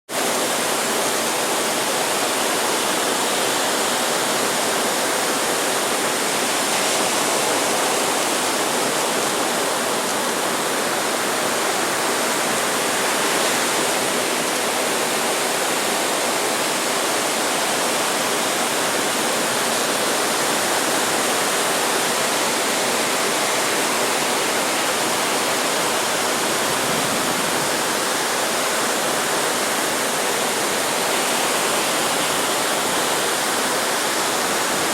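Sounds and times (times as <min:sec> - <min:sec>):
breaking surf: 0:19.1 - 0:34.9.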